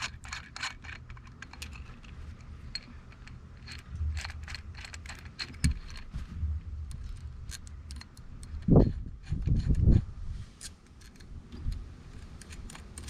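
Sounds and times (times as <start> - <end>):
rivet nut tool clicking and rattling: 0.0 - 6.2, 6.8 - 13.0.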